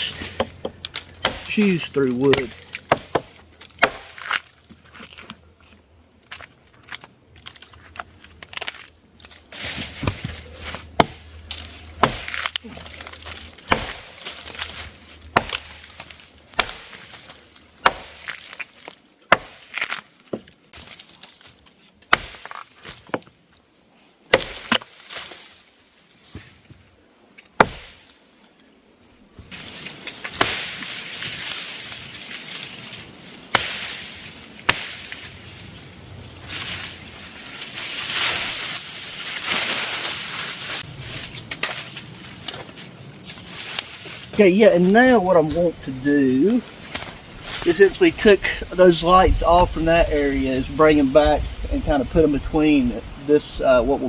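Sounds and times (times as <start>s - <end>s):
axe chopping wood: 0.2s - 1.6s, 2.3s - 4.5s, 9.8s - 18.7s, 19.3s - 20.9s, 22.1s - 23.3s, 24.3s - 24.9s, 27.6s - 28.0s, 33.5s - 34.0s, 34.6s - 35.1s
rustling hiss: 29.4s - 54.0s.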